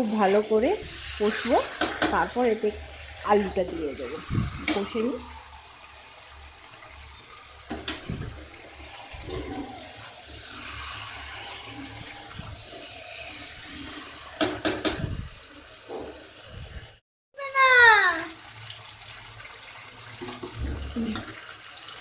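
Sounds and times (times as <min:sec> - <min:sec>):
chicken sizzling in oil: 0:00.0 - 0:22.0
metal spatula scraping pan: 0:08.8 - 0:14.6.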